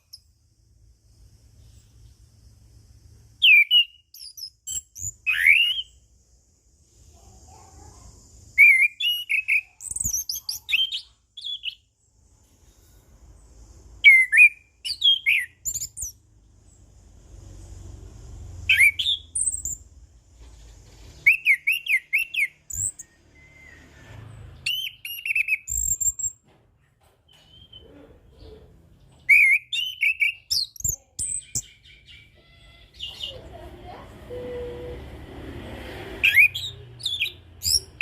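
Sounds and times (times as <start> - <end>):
thrush singing whistled notes: 3.4 - 6.1, 8.5 - 11.9, 14.0 - 16.2, 18.6 - 19.9, 21.2 - 26.4, 29.3 - 33.1, 36.2 - 38.0.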